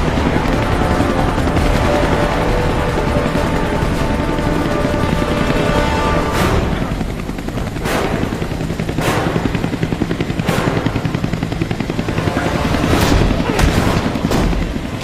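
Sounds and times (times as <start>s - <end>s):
action film music score: 0.0s - 15.0s
helicopter rotor chopping: 0.0s - 15.0s.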